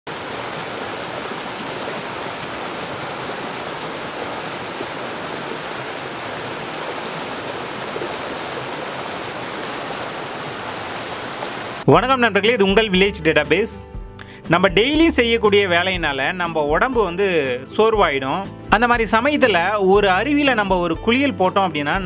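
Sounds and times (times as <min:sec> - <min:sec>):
waterfall rushing: 0:00.0 - 0:11.9.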